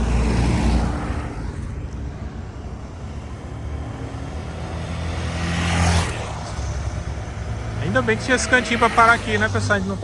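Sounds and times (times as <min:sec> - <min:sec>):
vehicles passing by: 0:00.0 - 0:10.0.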